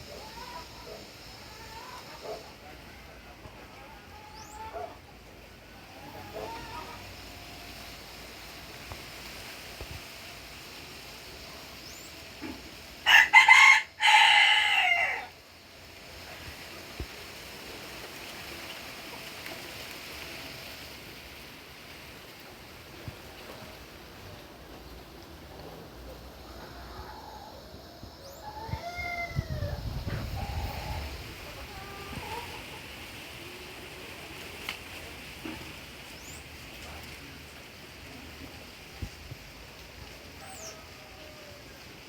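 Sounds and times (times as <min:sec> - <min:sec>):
faint outdoor background: 0:00.0 - 0:42.0
rooster crowing: 0:13.0 - 0:15.4, 0:26.4 - 0:32.6, 0:40.4 - 0:42.0.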